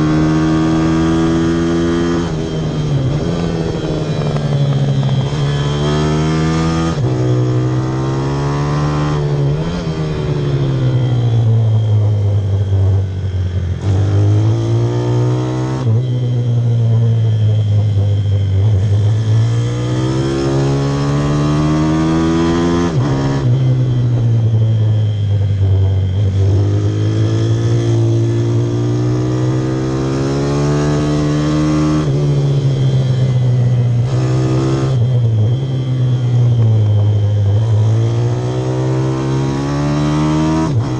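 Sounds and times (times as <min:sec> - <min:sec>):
small motorbike engine revving: 0:00.0 - 0:40.9.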